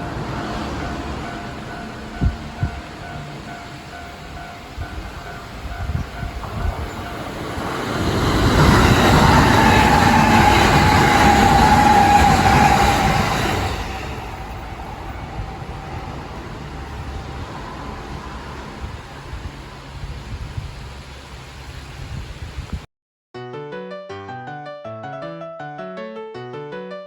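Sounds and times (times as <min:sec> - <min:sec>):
level crossing warning bell: 0:00.0 - 0:18.6
train passing with whine: 0:00.0 - 0:22.0.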